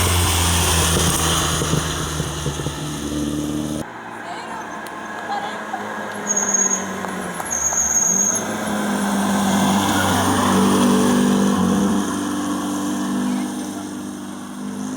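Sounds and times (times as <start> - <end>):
rally car engine running hard: 0.0 - 3.8.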